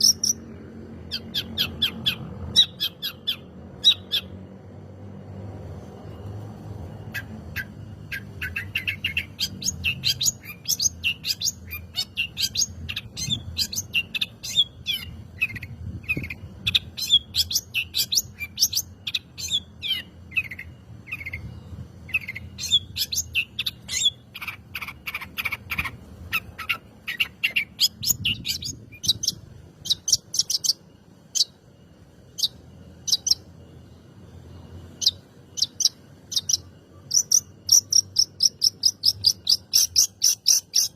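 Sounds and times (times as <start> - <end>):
bird chirping and trilling: 0.0 - 4.8, 6.7 - 40.9.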